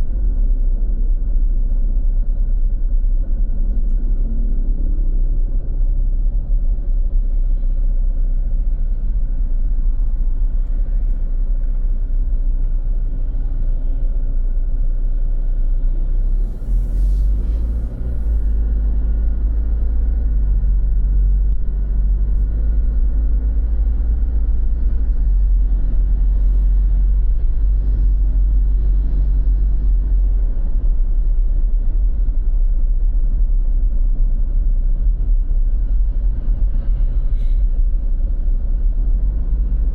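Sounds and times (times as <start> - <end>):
street traffic rumble: 0.0 - 39.9
brief hiss: 16.4 - 18.5.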